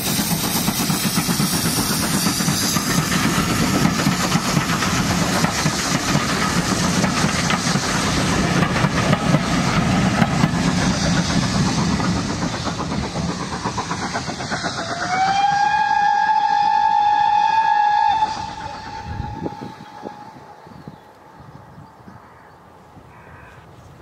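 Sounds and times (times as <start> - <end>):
train coaches rumbling over rail joints: 0.0 - 22.2
steam locomotive whistle: 14.8 - 21.0.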